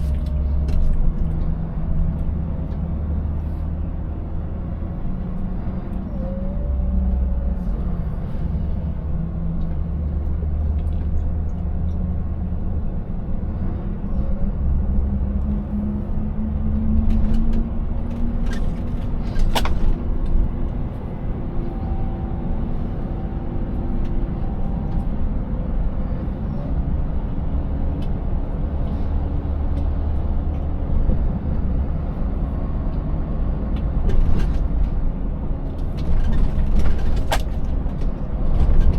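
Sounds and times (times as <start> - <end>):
truck engine running: 0.0 - 30.7
road rumble: 0.0 - 38.9.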